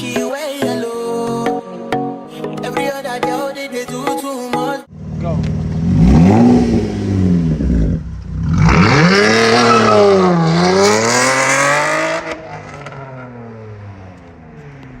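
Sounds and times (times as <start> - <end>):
car engine revving and idling: 4.9 - 15.0.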